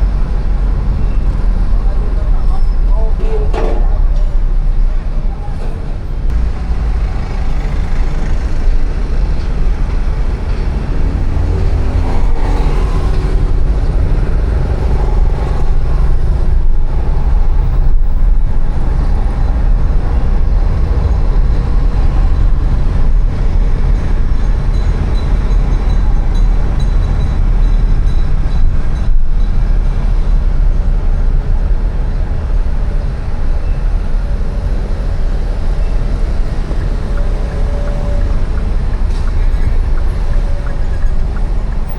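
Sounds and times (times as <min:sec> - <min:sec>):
engine passing by: 0:00.0 - 0:26.7
rumble of passing traffic: 0:00.0 - 0:41.9.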